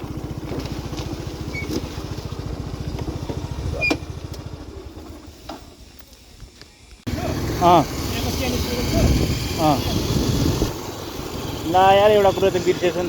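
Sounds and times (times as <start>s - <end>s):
small motorcycle engine putter: 0.4s - 2.2s.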